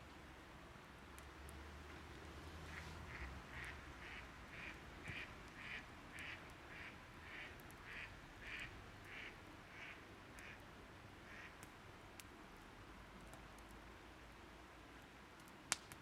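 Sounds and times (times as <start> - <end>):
faint clicks: 13.2 - 13.8, 15.0 - 16.0.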